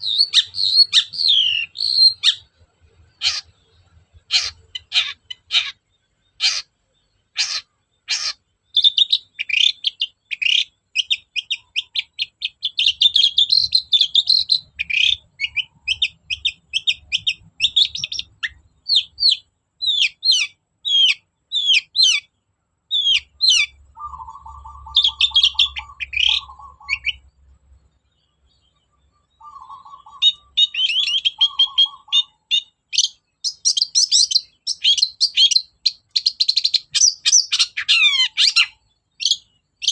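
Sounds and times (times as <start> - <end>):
shrike singing: 0.0 - 27.4, 28.5 - 39.9.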